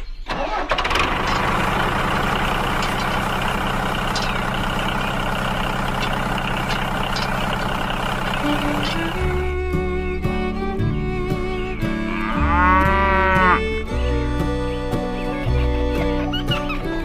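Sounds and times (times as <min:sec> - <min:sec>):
vehicle engine running: 0:00.8 - 0:12.3, 0:12.9 - 0:17.0.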